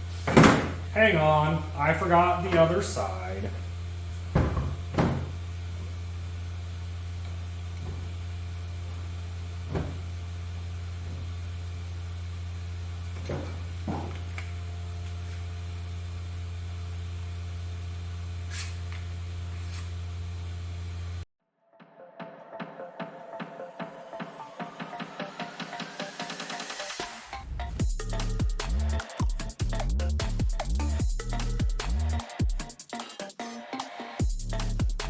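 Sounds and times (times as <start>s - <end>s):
steady low hum: 0.0s - 21.3s.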